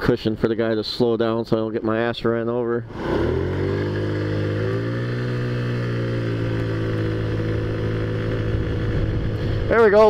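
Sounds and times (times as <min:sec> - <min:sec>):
scooter engine pulling away: 0:02.9 - 0:09.7.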